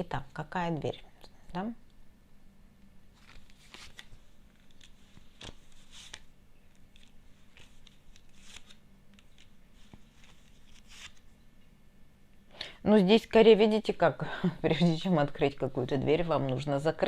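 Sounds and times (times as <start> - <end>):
cards rustling and clicking: 3.2 - 11.3.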